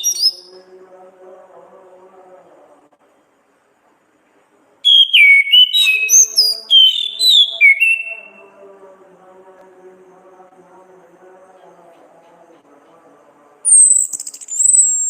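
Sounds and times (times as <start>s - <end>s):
thrush whistling song: 0.0s - 0.5s, 4.8s - 8.4s, 13.7s - 15.0s.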